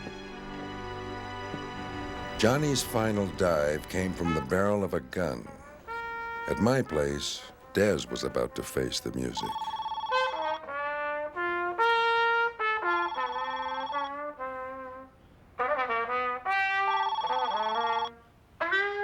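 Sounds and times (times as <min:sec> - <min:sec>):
trumpet playing phrases: 0:00.0 - 0:19.0
telephone ringing: 0:09.2 - 0:10.7, 0:12.9 - 0:14.2, 0:16.9 - 0:18.2.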